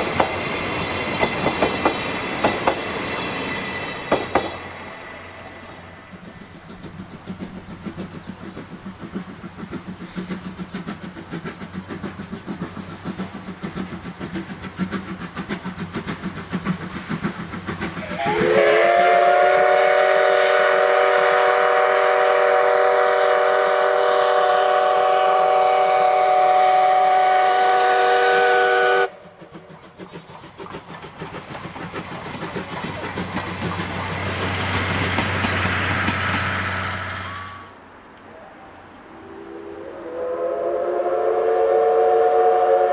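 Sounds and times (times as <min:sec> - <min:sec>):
steam locomotive chuffing: 0:00.0 - 0:38.0, 0:39.1 - 0:42.9
steam whistle blast: 0:18.0 - 0:29.3, 0:36.9 - 0:37.8, 0:39.2 - 0:42.9.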